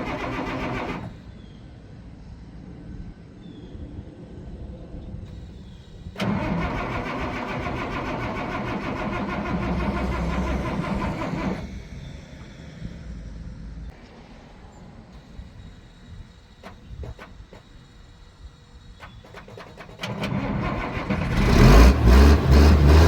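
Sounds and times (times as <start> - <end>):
diesel engine cranking and clattering: 0.0 - 1.3, 5.3 - 14.0, 15.2 - 23.0.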